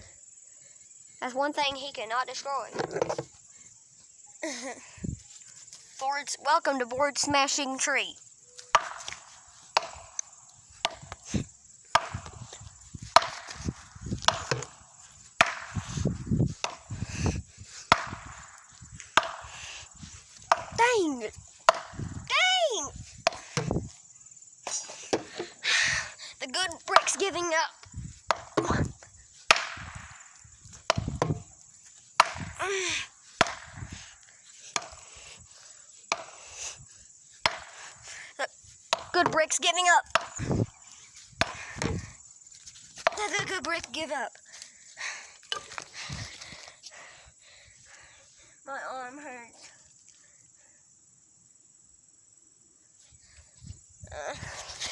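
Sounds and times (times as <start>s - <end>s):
brick knocking on tree trunk: 2.7s - 3.3s, 8.7s - 9.2s, 13.2s - 14.8s, 17.9s - 18.4s, 21.7s - 22.0s, 28.3s - 28.9s, 29.5s - 30.1s, 30.9s - 31.5s
hard blows against tree trunk: 8.7s - 24.0s, 26.9s - 34.2s, 34.8s - 35.2s, 36.1s - 36.8s, 37.4s - 38.0s, 38.9s - 42.2s.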